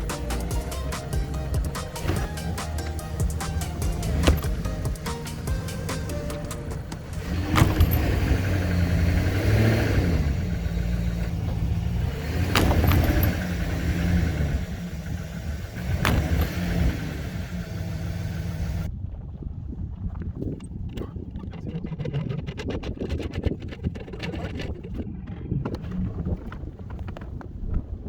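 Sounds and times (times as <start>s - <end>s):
diesel tractor engine revving: 0.0s - 18.9s
sharp knocks: 1.0s - 9.6s, 12.4s - 14.2s, 15.8s - 17.1s.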